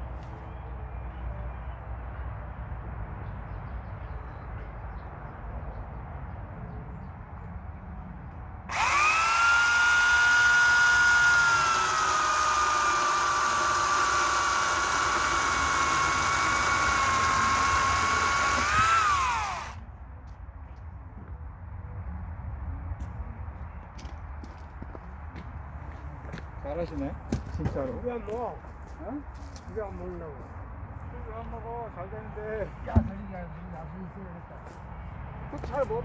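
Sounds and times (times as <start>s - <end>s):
electric saw motor whining: 8.7s - 19.8s.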